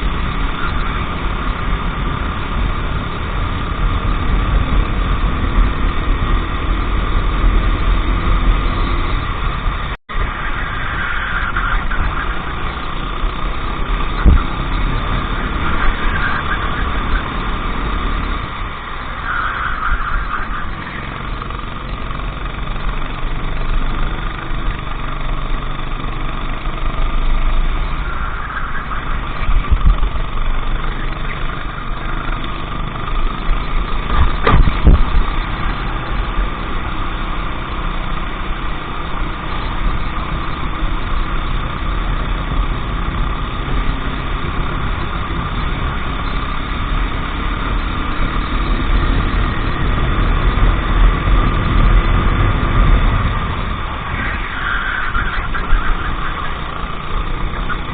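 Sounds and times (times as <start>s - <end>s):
go-kart engine running: 0.0s - 57.9s
loud knock: 34.1s - 35.0s.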